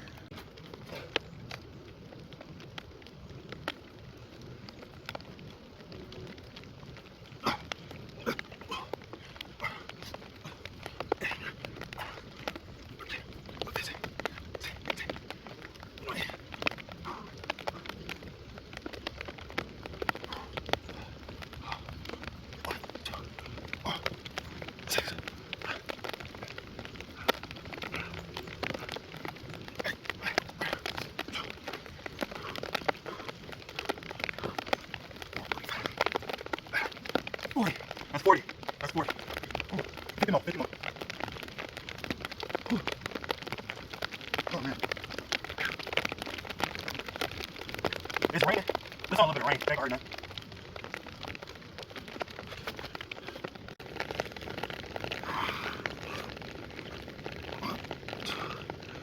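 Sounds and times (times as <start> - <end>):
raindrops ticking on a surface: 0.0 - 59.0
man breathing hard: 7.4 - 15.3, 20.2 - 33.6, 55.1 - 59.0.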